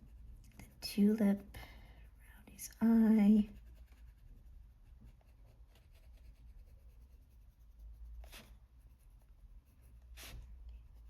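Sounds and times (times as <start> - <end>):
pencil scratching on paper: 3.3 - 11.0.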